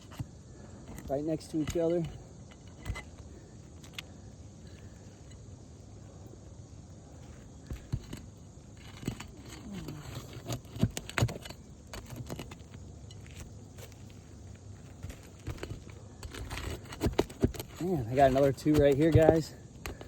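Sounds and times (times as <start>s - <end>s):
hand tools clicking and clinking: 7.7s - 14.2s, 14.9s - 20.0s.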